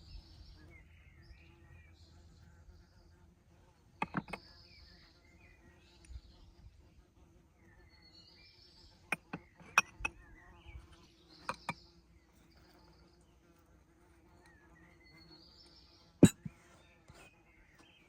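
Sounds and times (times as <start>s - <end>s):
birds chirping: 0.0s - 6.8s
sharp clicks or knocks: 4.0s - 4.4s.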